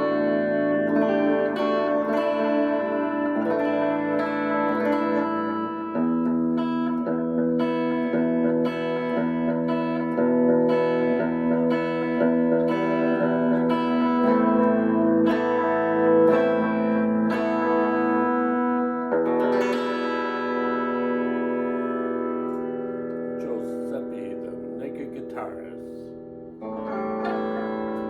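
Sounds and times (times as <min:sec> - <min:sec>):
guitar chords strummed: 0:00.0 - 0:28.0.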